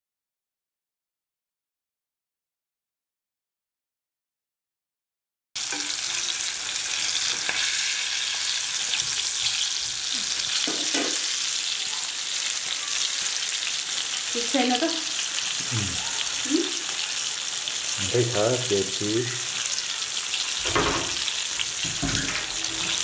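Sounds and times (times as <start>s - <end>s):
chicken sizzling in hot oil: 5.6s - 23.0s.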